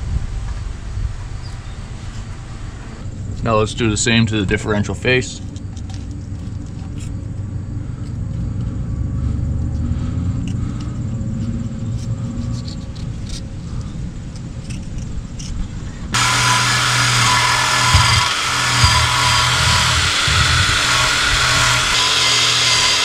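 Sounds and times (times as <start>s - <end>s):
low steady rumble: 0.0s - 23.0s
drill with wire wheel scrubbing: 16.1s - 23.0s.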